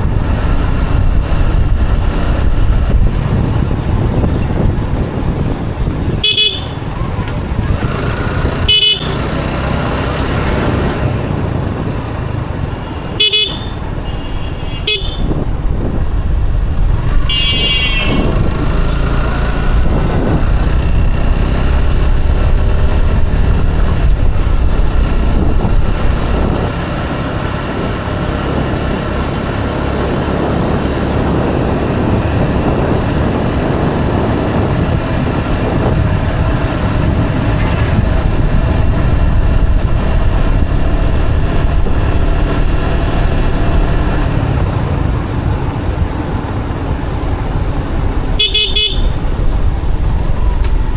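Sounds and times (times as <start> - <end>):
motorcycle engine: 0.0 - 50.9
wind rumble: 0.0 - 50.9
motorcycle horn toots: 6.2 - 7.3, 8.5 - 9.5, 12.7 - 15.4, 17.2 - 18.5, 48.4 - 49.4.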